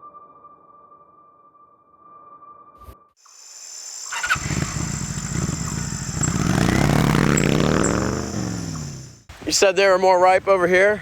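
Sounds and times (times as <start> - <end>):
motorcycle engine riding by: 3.6 - 9.3.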